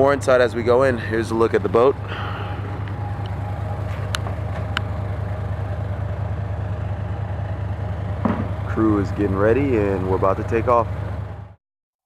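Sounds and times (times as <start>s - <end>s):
boat engines idling: 0.0s - 11.6s.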